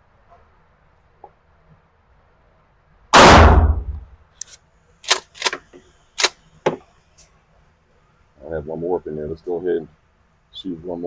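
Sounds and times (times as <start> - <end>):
shotgun blast: 3.1 - 4.1.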